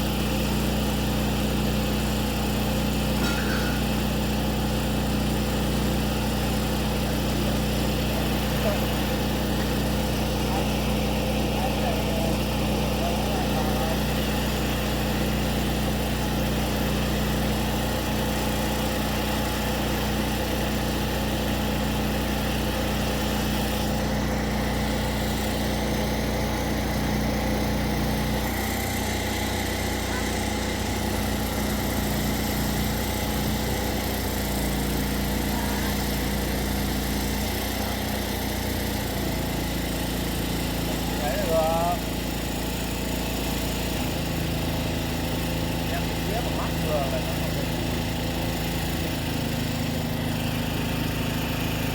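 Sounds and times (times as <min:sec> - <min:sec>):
motor hum: 0:00.0 - 0:51.9.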